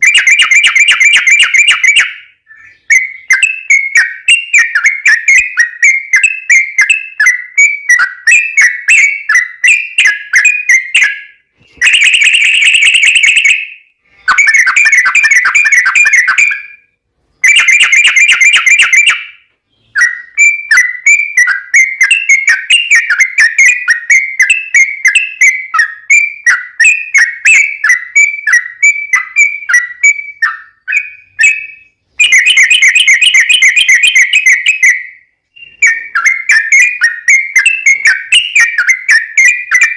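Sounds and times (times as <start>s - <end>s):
bird song of bubbly whistled chirps: 0.0s - 39.9s.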